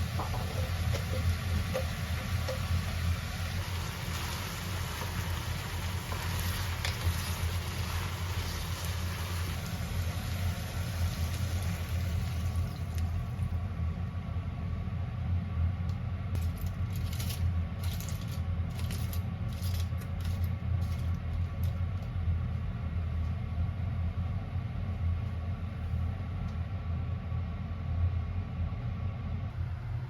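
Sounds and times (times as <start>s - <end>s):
steady low hum: 0.0s - 30.0s
small hard objects clinking: 16.4s - 21.7s.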